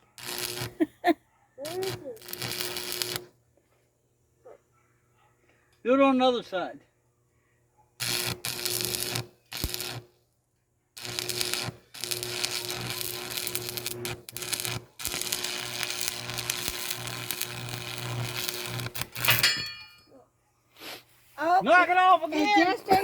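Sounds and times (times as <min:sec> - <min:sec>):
welding arc crackling: 0:00.2 - 0:00.8, 0:01.7 - 0:03.3, 0:08.0 - 0:10.1, 0:11.0 - 0:19.6.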